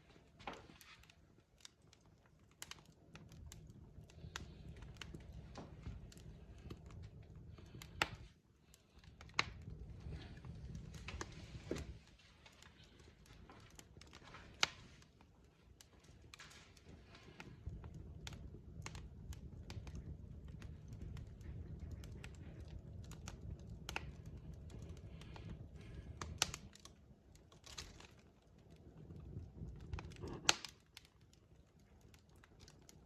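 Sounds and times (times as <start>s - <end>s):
fireplace logs crackling and popping: 0.0s - 33.0s
low rumble of flames: 0.0s - 33.0s.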